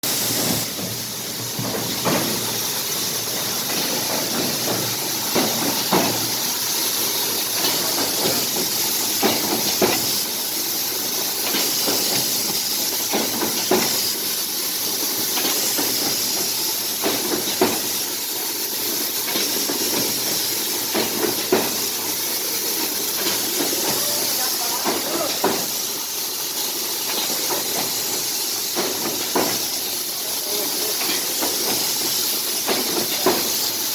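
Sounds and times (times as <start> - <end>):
sharp machine knocks: 0.0 - 10.2
paper trimming machine hiss: 0.0 - 33.9.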